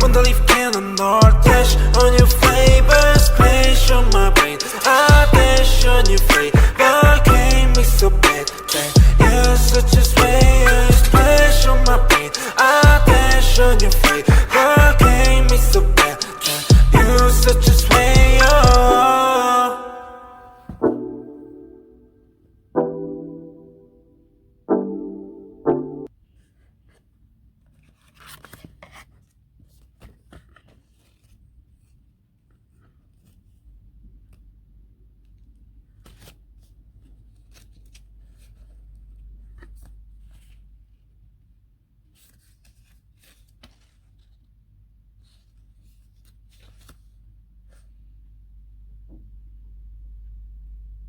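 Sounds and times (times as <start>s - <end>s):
background music: 0.0s - 22.2s, 22.8s - 26.1s
low steady hum: 48.1s - 51.0s.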